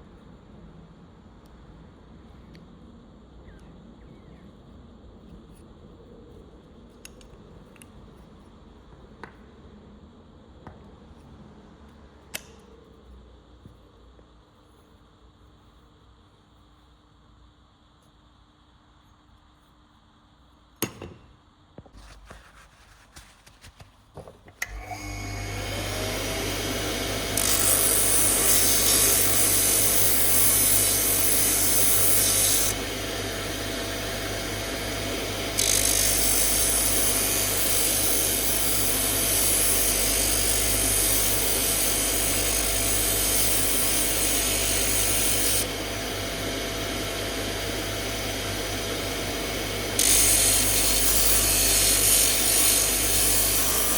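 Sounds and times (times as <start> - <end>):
power tool cutting wood: 24.6 - 53.9.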